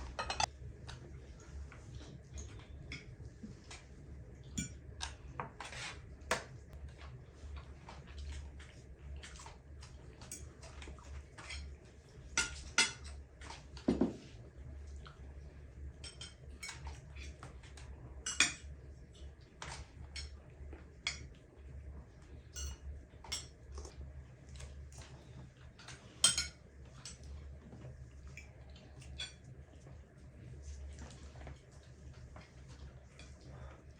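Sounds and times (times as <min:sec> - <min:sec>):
low steady hum: 0:00.0 - 0:33.9
cutlery clinking on plates: 0:00.1 - 0:00.5, 0:25.9 - 0:27.3.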